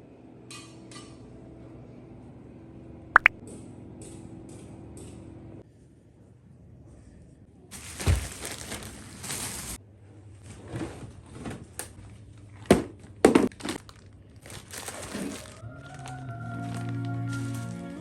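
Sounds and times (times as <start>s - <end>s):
crunching rustling handling noise: 7.7s - 9.8s, 13.5s - 18.0s.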